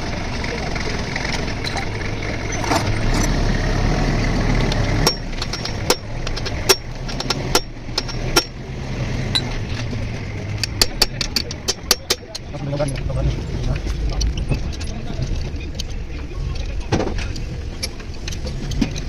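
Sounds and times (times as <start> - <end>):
engine running: 0.0 - 19.0
tools clinking on metal: 5.0 - 8.6, 9.3 - 9.6, 10.5 - 13.0.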